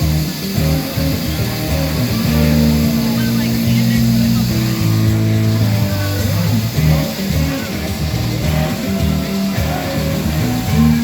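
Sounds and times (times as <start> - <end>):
low bass notes: 0.0 - 11.0
plucked guitar: 0.0 - 11.0.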